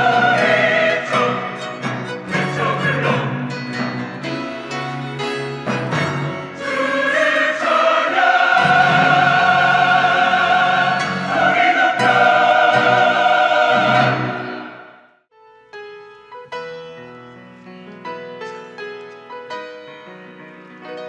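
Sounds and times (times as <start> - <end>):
church choir singing held chords: 0.0 - 4.3, 5.9 - 15.2
orchestral accompaniment: 0.0 - 15.0.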